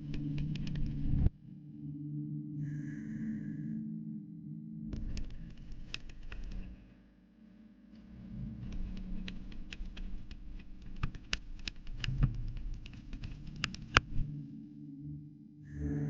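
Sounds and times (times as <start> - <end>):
rapid patter of small clicks: 0.0 - 1.3, 5.0 - 7.0, 7.9 - 14.2
steady low hum: 0.0 - 16.0.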